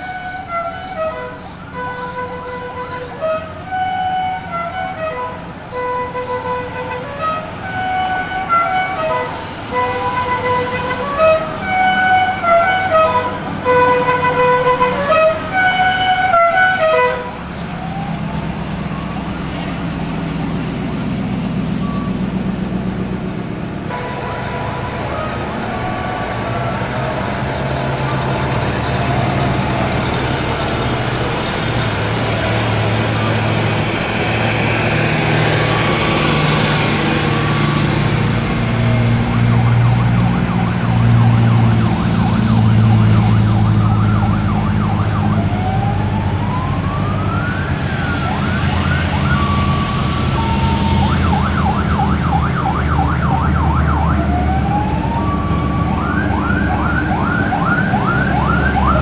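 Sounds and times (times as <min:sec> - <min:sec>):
vehicle engines running: 0:00.0 - 0:59.0
electronic siren wailing and yelping: 0:38.8 - 0:59.0.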